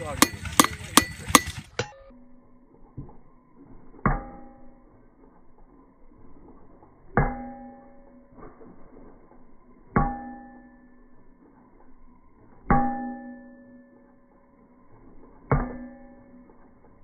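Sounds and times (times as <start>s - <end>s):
hammer striking anvil: 0.0s - 2.4s, 4.0s - 4.9s, 7.1s - 8.6s, 9.9s - 11.3s, 12.7s - 14.3s, 15.5s - 16.7s.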